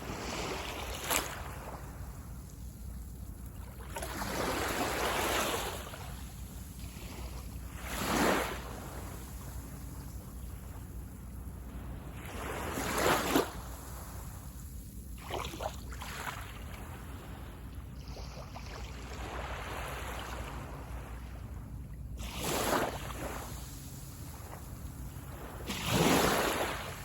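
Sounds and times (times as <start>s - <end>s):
small waves breaking on shore: 0.0s - 27.0s.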